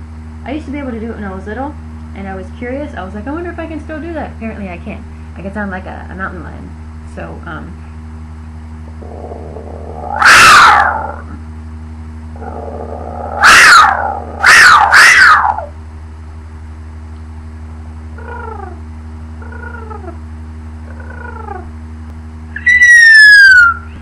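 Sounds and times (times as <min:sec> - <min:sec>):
low electrical hum: 0:00.0 - 0:24.0
woman imitating mountain lion scream: 0:09.9 - 0:11.4, 0:13.2 - 0:15.7.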